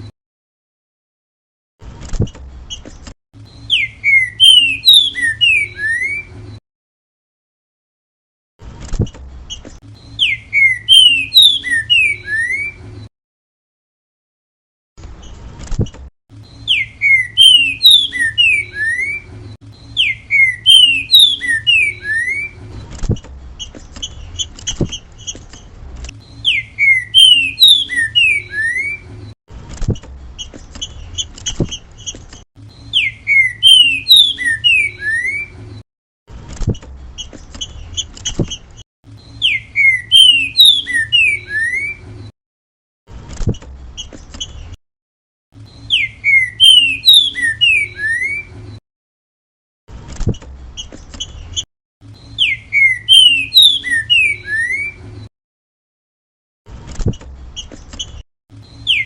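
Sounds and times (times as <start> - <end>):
bird singing slurred whistles: 3.5 - 6.3, 10.0 - 12.8, 16.5 - 22.6, 26.3 - 29.0, 32.8 - 35.5, 39.2 - 42.0, 45.7 - 48.5, 52.2 - 55.0, 58.6 - 59.0.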